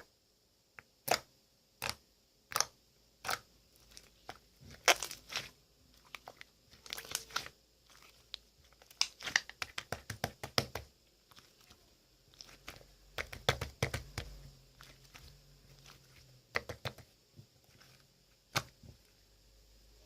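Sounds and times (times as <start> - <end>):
slime sticky clicks and crackles: 1.0 - 11.6.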